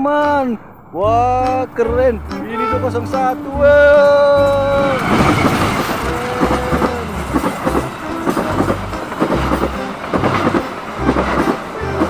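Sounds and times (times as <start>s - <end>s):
train wheels clattering over rail joints: 3.1s - 12.0s.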